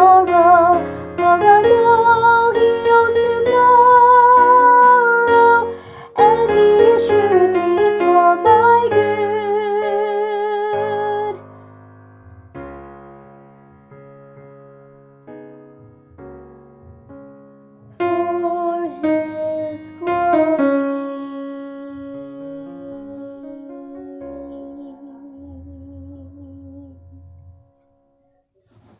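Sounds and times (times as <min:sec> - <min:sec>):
woman singing with vibrato: 0:00.0 - 0:11.5, 0:18.0 - 0:27.2
piano accompaniment: 0:00.0 - 0:28.2.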